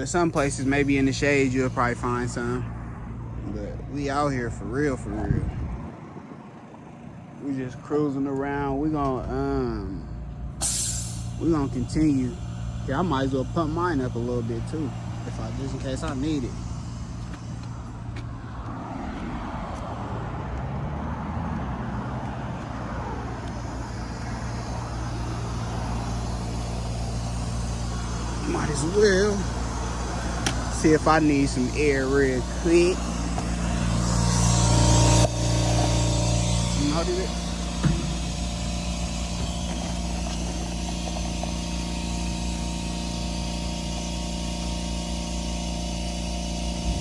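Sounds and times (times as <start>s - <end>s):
vehicle hum with tyre noise: 0.0s - 47.0s.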